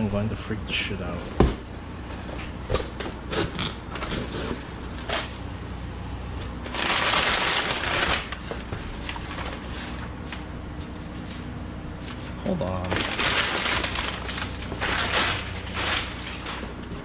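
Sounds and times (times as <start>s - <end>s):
cardboard packing crinkles: 6.3s - 17.0s
loud packing rustle: 6.3s - 17.0s.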